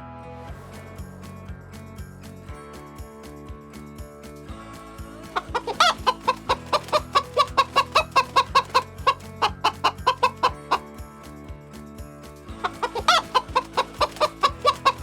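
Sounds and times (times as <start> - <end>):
background music: 0.0 - 15.0
chicken clucking: 5.4 - 10.8, 12.6 - 15.0.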